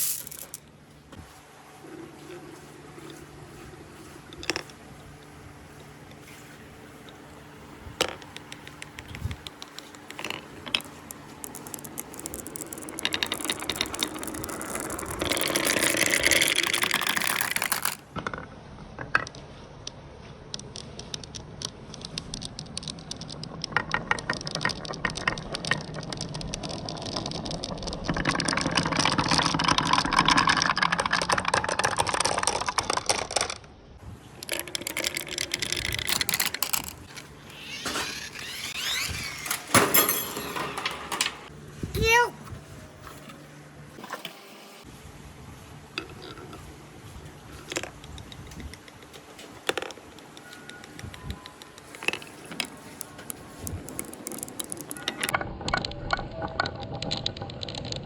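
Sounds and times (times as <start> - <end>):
marbles rattling along a track: 0.0 - 0.7, 4.3 - 4.8, 8.0 - 18.4, 22.8 - 33.6, 34.4 - 41.3, 49.6 - 51.0, 51.8 - 58.0.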